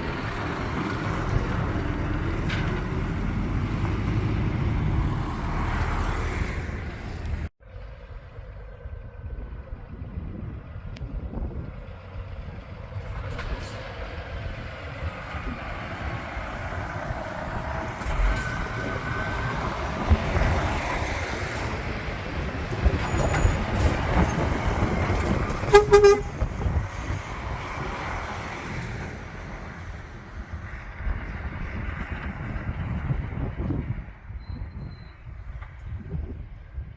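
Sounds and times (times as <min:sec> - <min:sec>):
truck engine rumbling: 0:00.0 - 0:36.9
truck horn toot: 0:25.6 - 0:26.7.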